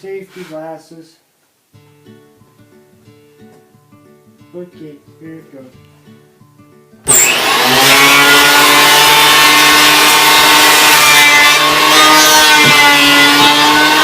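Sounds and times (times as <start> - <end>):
planer motor whining: 7.1 - 14.0.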